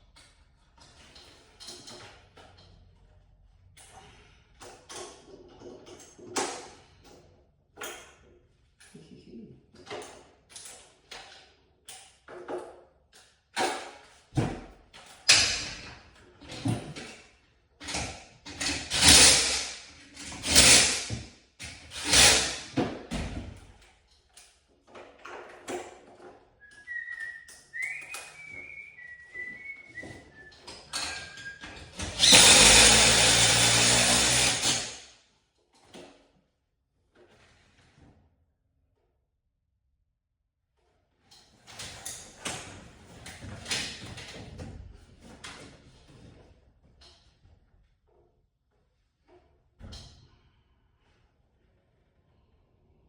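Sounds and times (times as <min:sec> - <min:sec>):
power drill bursts: 0:20.4 - 0:21.1, 0:32.0 - 0:35.0.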